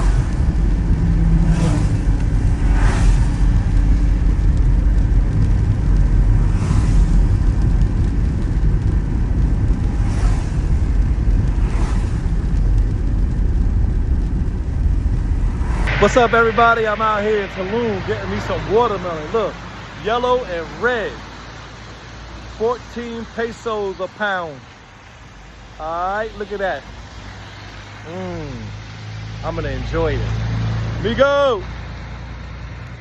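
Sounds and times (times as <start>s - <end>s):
passing whooshes: 0.0s - 25.6s
vehicle road rumble: 0.0s - 33.0s.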